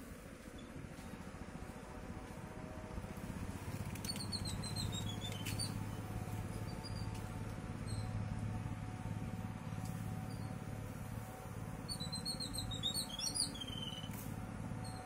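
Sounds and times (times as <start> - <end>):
steady low hum: 0.0 - 15.0
small bird chirping: 4.0 - 7.2, 7.8 - 8.1, 11.8 - 14.2.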